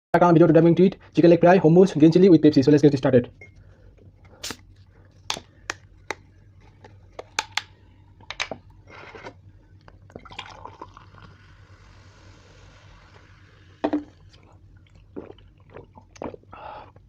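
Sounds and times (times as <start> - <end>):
cola fizzing in a glass: 10.1 - 16.5.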